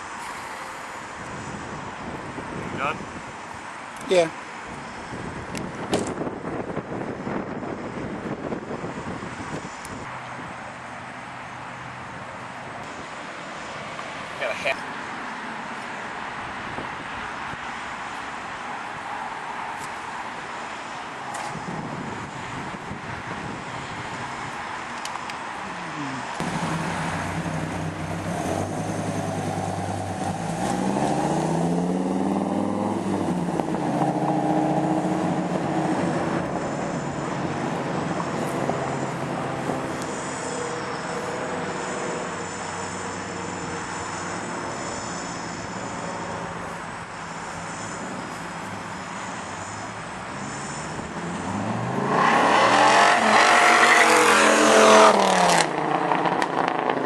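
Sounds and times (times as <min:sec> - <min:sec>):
car engine revving: 0:25.8 - 0:46.7, 0:47.4 - 0:57.0.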